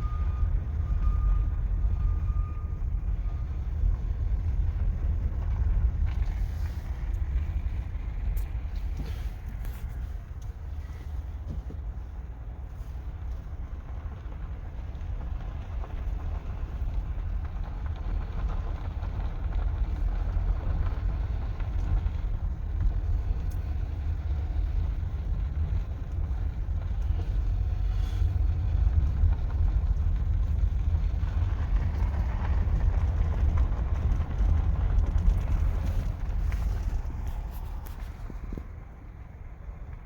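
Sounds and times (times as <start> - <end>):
vehicle low rumble: 0.0 - 40.0
wind buffeting microphone: 13.9 - 40.0.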